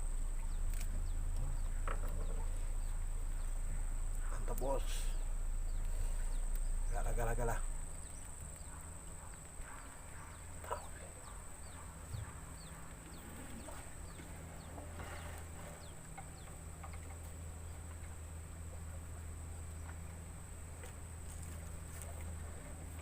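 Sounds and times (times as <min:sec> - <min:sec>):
low hum: 0:00.0 - 0:23.0
steady high-pitched whine: 0:00.0 - 0:23.0
faint knocks: 0:01.4 - 0:03.0.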